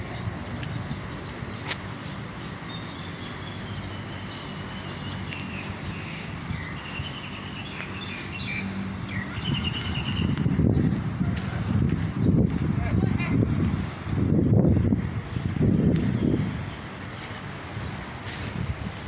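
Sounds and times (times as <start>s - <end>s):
birds chirping and whistling: 0.1s - 12.7s.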